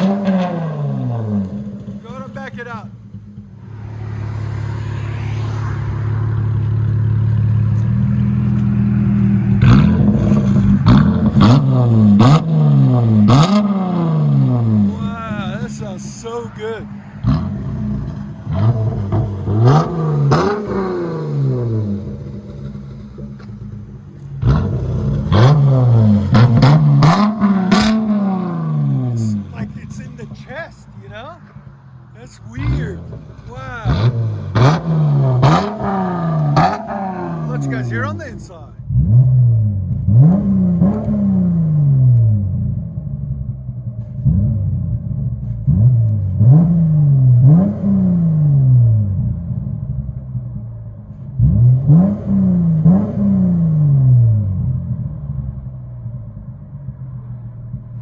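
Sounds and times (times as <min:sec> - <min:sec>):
car engine idling: 0:00.0 - 0:41.1
car engine revving: 0:00.0 - 0:58.0.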